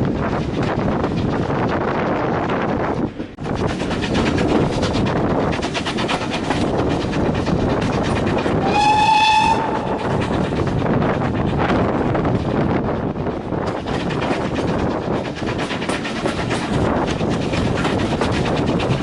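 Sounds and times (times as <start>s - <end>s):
train rumble and rail clatter: 0.0s - 19.0s
train whistle blast: 8.6s - 10.0s.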